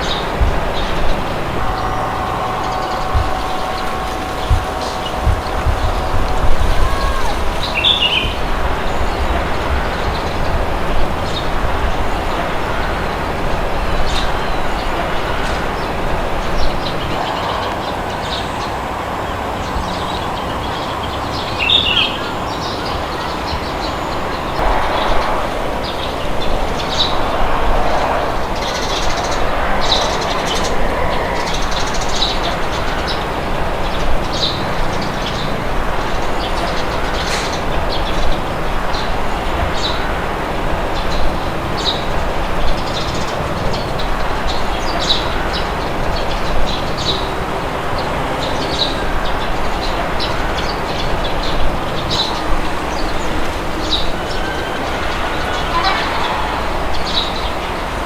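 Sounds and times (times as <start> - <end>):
rushing wind: 0.0 - 58.0
small birds chirping: 0.0 - 58.0.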